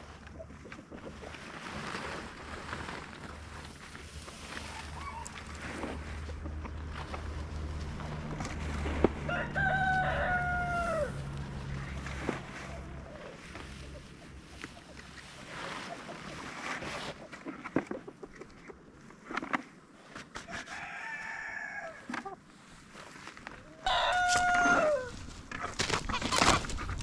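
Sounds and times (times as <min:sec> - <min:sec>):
steady low rumble: 0:05.5 - 0:09.3
rooster crowing: 0:09.2 - 0:11.3, 0:20.7 - 0:22.1, 0:23.8 - 0:25.2.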